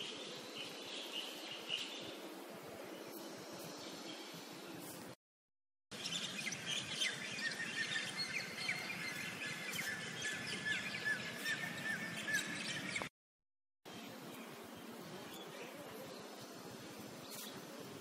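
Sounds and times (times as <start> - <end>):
steady outdoor hiss: 0.0 - 5.2, 5.9 - 13.1, 13.9 - 18.0
small birds chirping: 5.9 - 13.1, 13.9 - 18.0.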